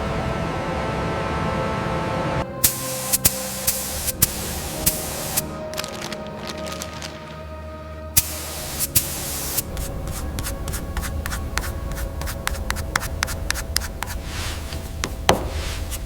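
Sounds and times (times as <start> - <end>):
low rumble: 0.0 - 8.4
paint spray gun hissing: 2.6 - 5.6, 8.2 - 11.4.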